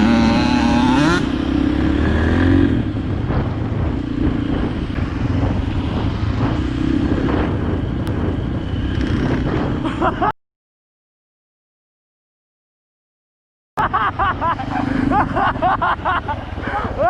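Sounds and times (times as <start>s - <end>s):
dirt bike engine running: 0.0s - 10.1s.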